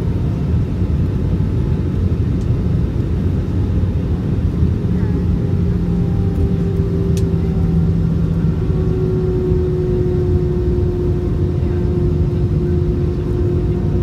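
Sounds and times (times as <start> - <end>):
aircraft engines rumbling: 0.0 - 14.0
cabin hum: 4.6 - 14.0.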